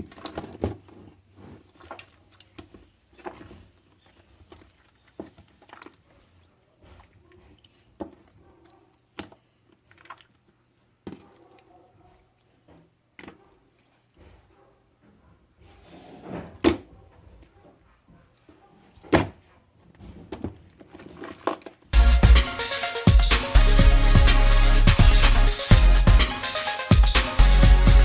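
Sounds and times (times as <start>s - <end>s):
slime squishing: 9.1s - 10.6s.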